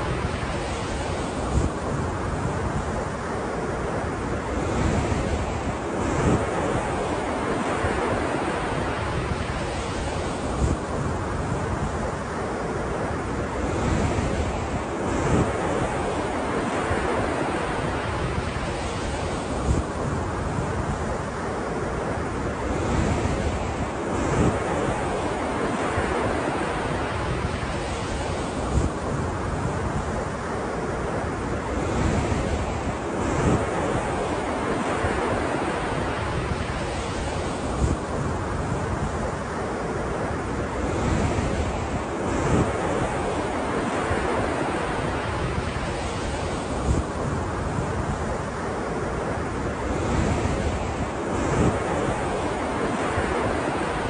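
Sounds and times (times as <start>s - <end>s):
ocean waves washing onto shore: 0.0s - 54.0s
wind buffeting microphone: 0.0s - 54.0s.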